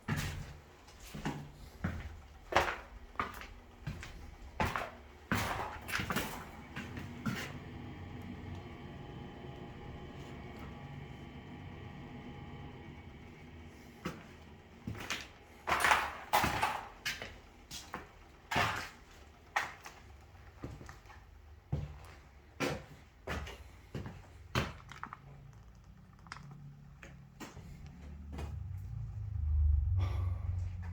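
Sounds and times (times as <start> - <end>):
low rumble: 5.4 - 16.2, 25.7 - 30.9.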